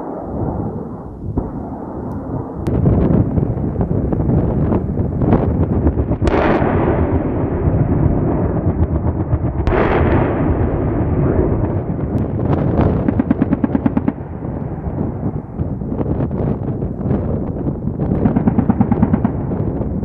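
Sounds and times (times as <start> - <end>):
gun firing in bursts: 5.8 - 15.6, 17.9 - 20.0
sharp blasts: 6.1 - 14.8.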